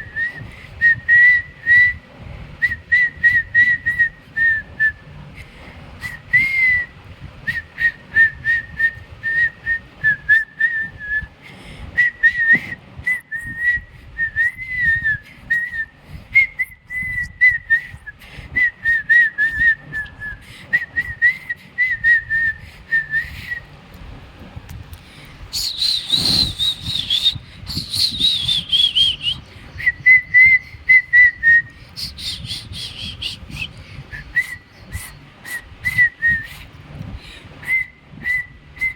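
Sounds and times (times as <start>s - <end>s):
person whistling a tune: 0.1s - 2.0s, 12.0s - 18.0s, 25.6s - 34.6s, 37.6s - 38.9s.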